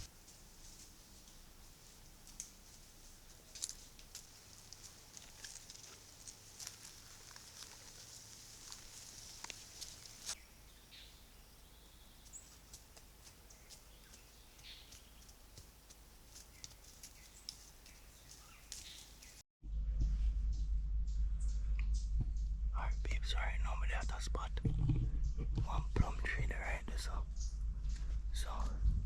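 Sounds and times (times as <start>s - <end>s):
small clicks and crackles: 3.5s - 10.4s, 16.3s - 19.1s.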